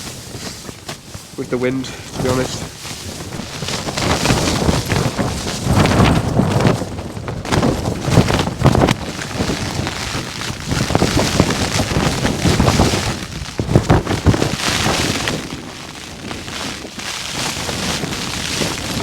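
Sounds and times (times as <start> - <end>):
strong wind buffeting a tent: 0.0 - 19.0
tent flapping and rustling: 0.0 - 19.0
wind rumble on microphone: 0.0 - 19.0.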